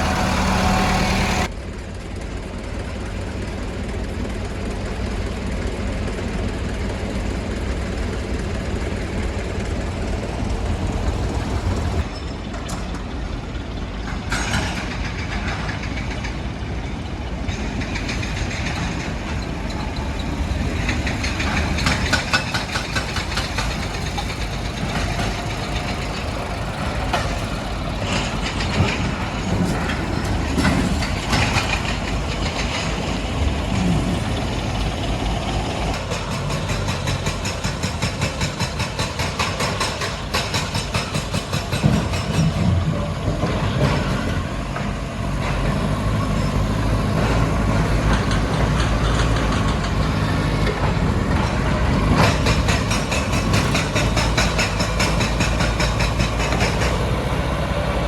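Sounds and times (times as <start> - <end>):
heavy machinery engine running: 0.0 - 58.0
rapid clattering and knocks: 17.5 - 42.6.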